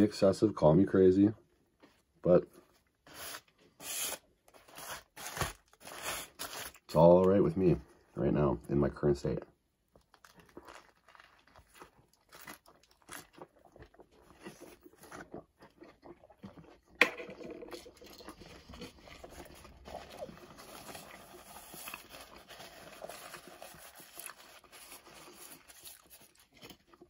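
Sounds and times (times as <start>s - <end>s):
chewing mouth sounds: 10.0s - 17.0s.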